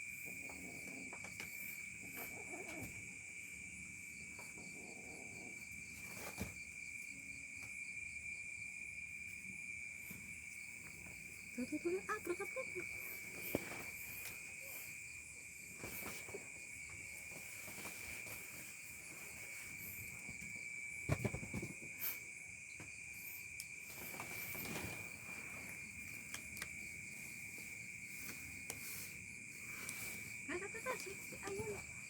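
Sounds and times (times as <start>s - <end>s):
crickets trilling: 0.0s - 32.0s
cat growling: 2.0s - 3.1s.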